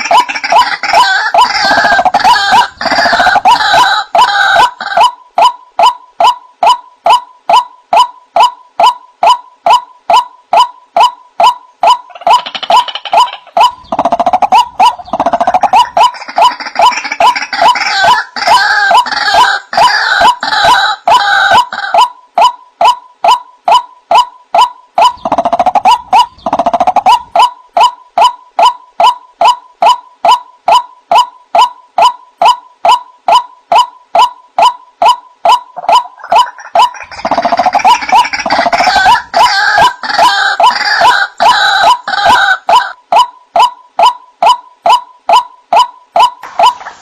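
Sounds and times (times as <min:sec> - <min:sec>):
harsh rough bird calls: 0:00.0 - 0:47.0.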